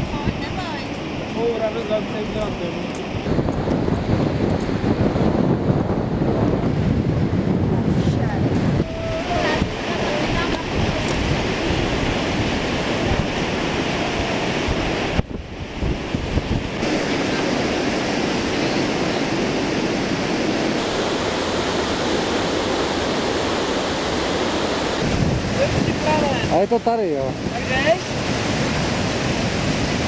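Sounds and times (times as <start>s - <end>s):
wind buffeting microphone: 0.0s - 30.0s
waterfall rushing: 8.7s - 30.0s.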